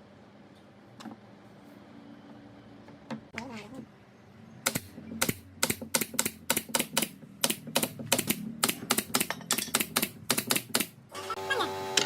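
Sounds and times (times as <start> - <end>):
sharp clicks: 4.6 - 10.9.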